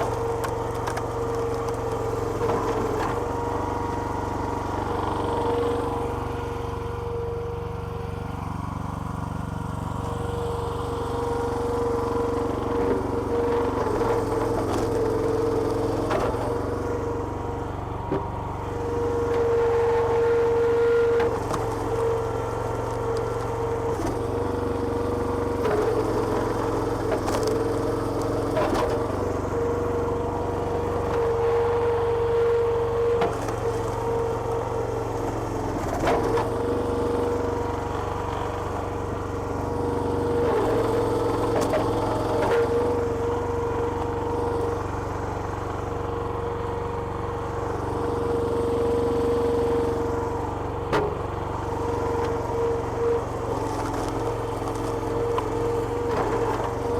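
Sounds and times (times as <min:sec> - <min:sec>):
petrol engine running: 0:00.0 - 0:56.9.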